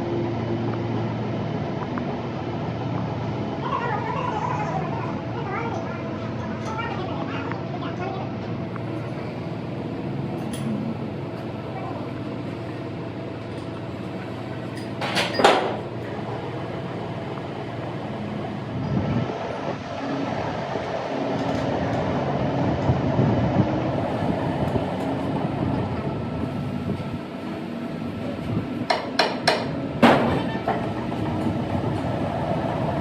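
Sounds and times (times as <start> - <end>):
machinery humming: 0.0 - 33.0
sharp metal knocks: 28.9 - 30.5.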